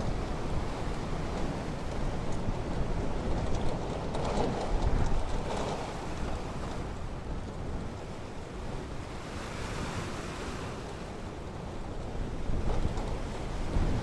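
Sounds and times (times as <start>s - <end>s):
wind rumble on microphone: 0.0s - 14.0s
ocean surf breaking on shore: 4.8s - 14.0s.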